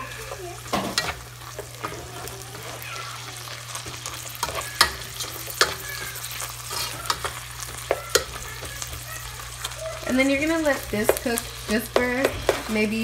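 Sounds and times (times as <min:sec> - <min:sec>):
sausage and onion sizzling: 0:00.0 - 0:13.0
spatula scraping a pot: 0:00.9 - 0:09.0.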